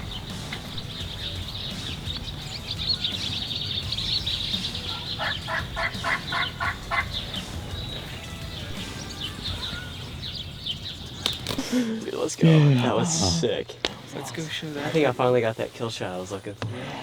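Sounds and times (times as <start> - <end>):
turkey gobbling: 0.0 - 11.2
songbirds chirping: 0.0 - 17.0.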